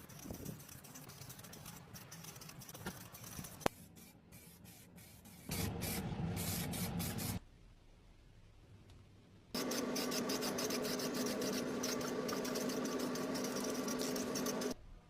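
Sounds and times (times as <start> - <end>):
aerosol spray paint hissing: 0.0 - 7.4, 9.6 - 14.8.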